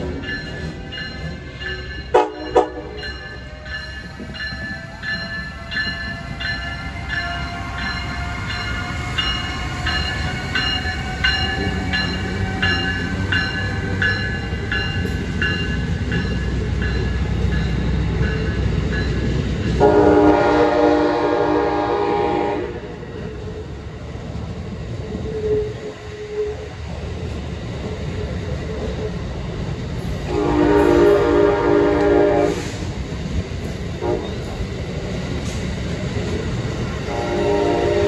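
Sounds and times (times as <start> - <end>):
train rumble: 0.0 - 38.0
bell ringing: 0.2 - 19.3
train horn blasts: 2.1 - 3.1, 19.7 - 23.0, 30.2 - 32.9, 34.0 - 34.4, 37.1 - 38.0.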